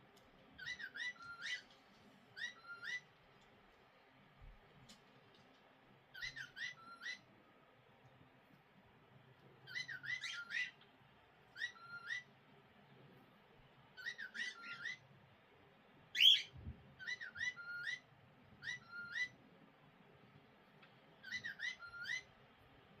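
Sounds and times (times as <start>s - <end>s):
cockatiel chattering: 0.6s - 1.6s, 2.4s - 3.0s, 6.1s - 7.3s, 9.7s - 10.8s, 11.6s - 12.3s, 14.0s - 15.0s, 16.2s - 19.4s, 21.2s - 22.3s.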